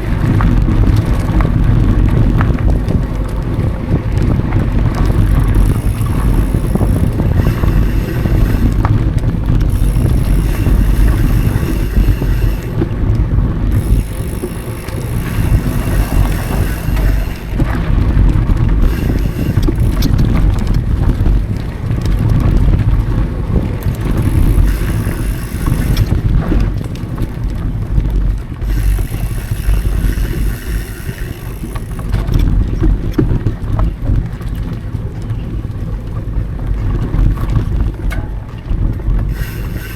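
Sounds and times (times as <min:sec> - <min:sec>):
bike tyre rumble on dirt: 0:00.0 - 0:39.9
wind buffeting microphone: 0:00.0 - 0:39.9
high buzz: 0:05.0 - 0:13.1, 0:13.7 - 0:17.9, 0:18.6 - 0:20.6, 0:24.1 - 0:26.2, 0:28.6 - 0:32.1, 0:39.3 - 0:39.9.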